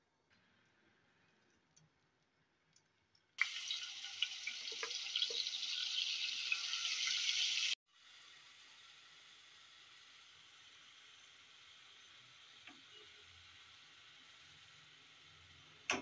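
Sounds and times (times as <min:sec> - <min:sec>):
faint steady sizzle: 0:00.0 - 0:16.0
onion sizzling in hot oil: 0:03.4 - 0:16.0.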